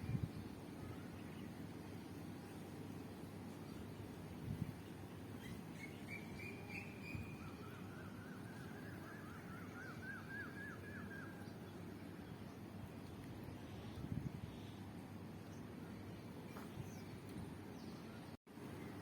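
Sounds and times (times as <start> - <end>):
low background noise: 0.0 - 19.0
bird trill: 5.4 - 11.5
bird chirps: 5.4 - 12.3.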